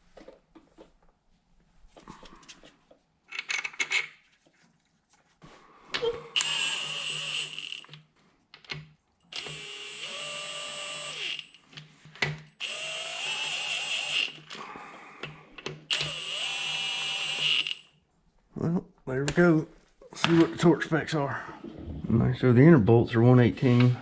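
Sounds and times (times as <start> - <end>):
power drill whirring: 6.3 - 7.9, 9.3 - 11.6, 12.6 - 14.6, 15.9 - 17.9.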